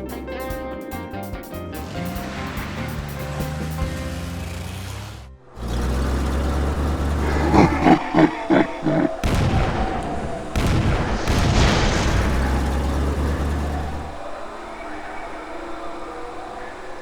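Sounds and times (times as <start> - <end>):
noisy blasts: 5.5 - 14.6
loud bangs: 8.8 - 14.2.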